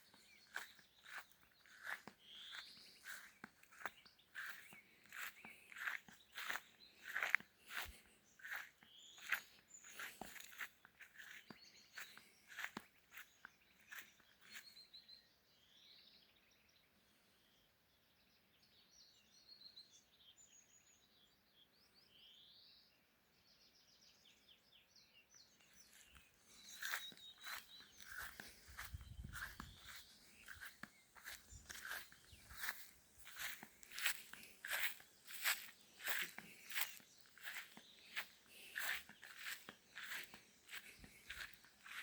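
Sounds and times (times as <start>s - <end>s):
footsteps crunching on dry ground: 0.0s - 14.9s, 25.7s - 42.0s
small birds chirping: 0.0s - 42.0s.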